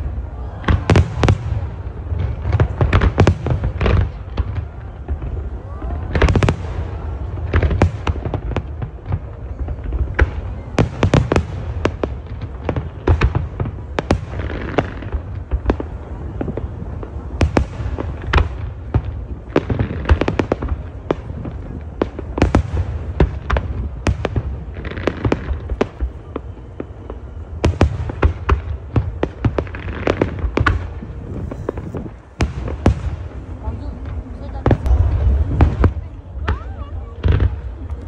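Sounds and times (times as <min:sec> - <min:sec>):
fireworks bangs: 0:00.0 - 0:38.0.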